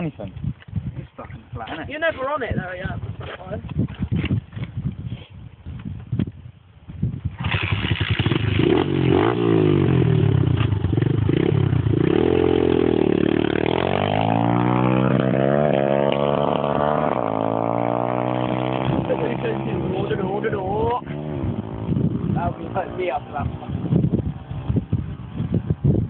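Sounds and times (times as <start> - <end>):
pit bike engine revving: 7.4 - 25.7.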